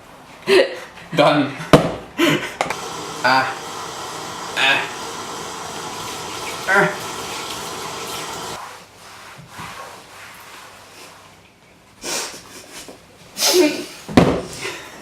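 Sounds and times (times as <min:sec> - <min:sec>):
tap water running: 0:02.7 - 0:08.6.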